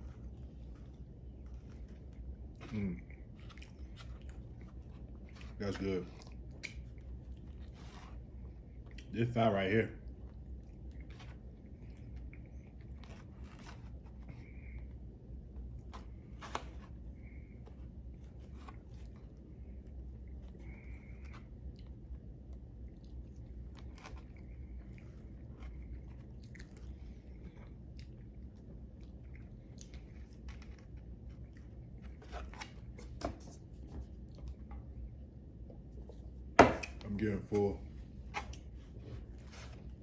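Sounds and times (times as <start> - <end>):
person chewing crunchy food: 20.2 - 32.1.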